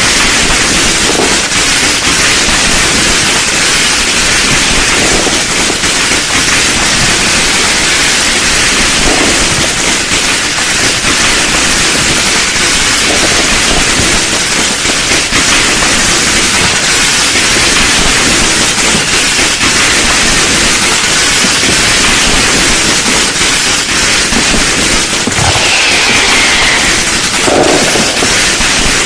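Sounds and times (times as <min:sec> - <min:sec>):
fireworks crackling: 0:00.0 - 0:29.0
falling firework whistle: 0:24.3 - 0:29.0.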